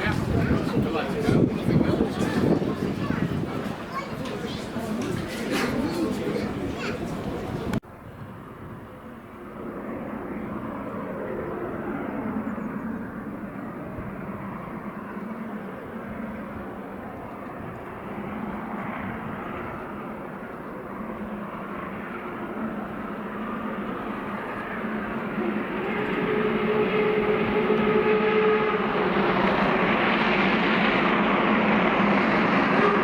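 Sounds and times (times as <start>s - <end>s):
train rumbling: 0.0s - 7.8s, 16.9s - 33.0s.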